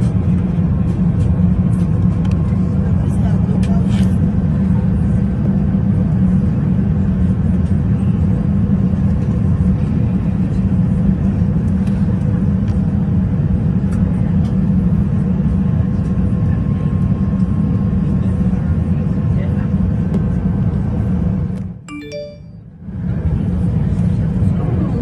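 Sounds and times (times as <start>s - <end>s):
airflow and engine drone: 0.0s - 25.0s.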